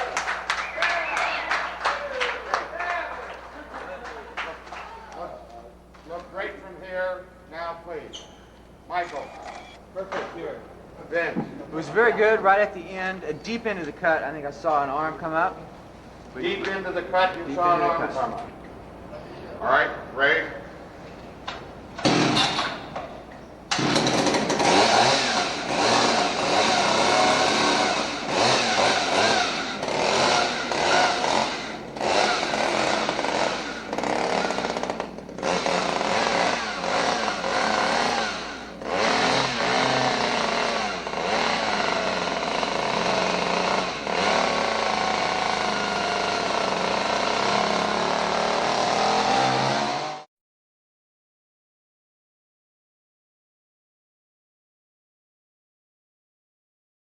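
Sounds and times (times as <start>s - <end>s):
chainsaw revving: 9.0s - 9.8s, 11.7s - 15.5s, 22.0s - 50.3s.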